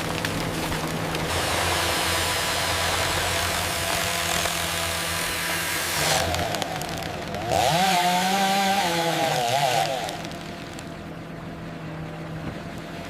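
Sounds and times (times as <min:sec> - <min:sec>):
engine-driven saw cutting wood: 0:01.1 - 0:11.0.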